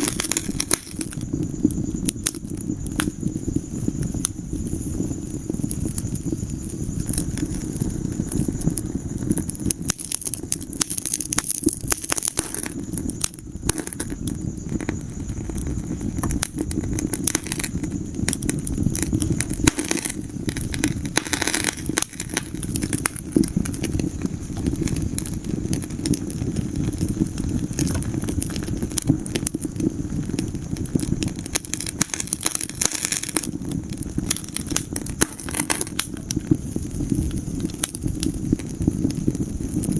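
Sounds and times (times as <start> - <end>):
fire pops and crackles: 0.0 - 39.9
low rush of flame: 0.0 - 39.9.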